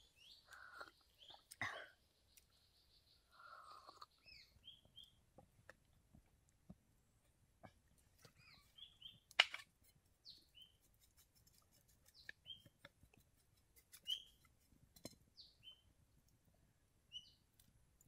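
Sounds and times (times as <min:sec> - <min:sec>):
birds chirping: 0:00.0 - 0:05.2, 0:08.2 - 0:09.4, 0:10.2 - 0:11.1, 0:12.0 - 0:12.9, 0:13.9 - 0:14.5, 0:15.3 - 0:15.9, 0:17.1 - 0:17.5.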